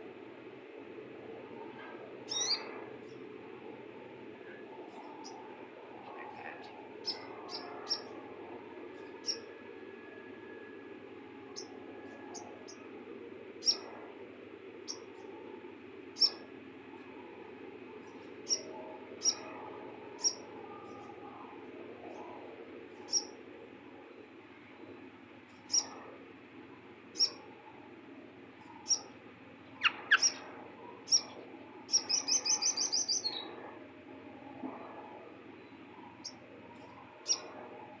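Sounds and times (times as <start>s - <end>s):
bird chirping: 2.3s - 3.2s, 16.2s - 16.4s, 18.1s - 19.5s, 25.5s - 26.0s, 27.2s - 27.4s, 28.6s - 30.5s, 31.1s - 33.6s.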